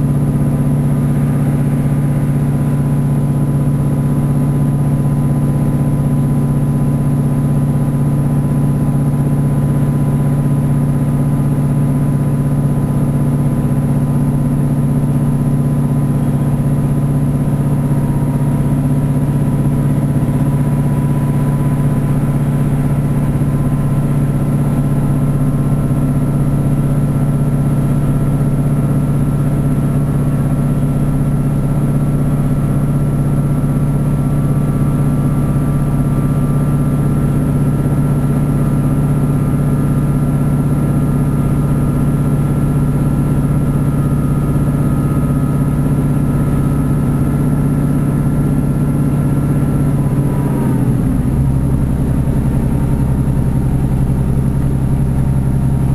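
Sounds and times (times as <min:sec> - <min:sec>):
train diesel engine humming: 0:00.0 - 0:05.6, 0:17.8 - 0:26.7, 0:49.2 - 0:55.9.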